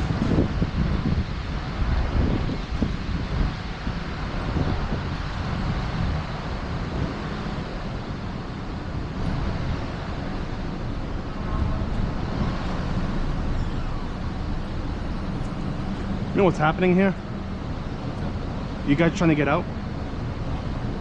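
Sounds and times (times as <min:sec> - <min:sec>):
wind buffeting microphone: 0:00.0 - 0:19.1
rumble of motor vehicles: 0:00.0 - 0:21.0.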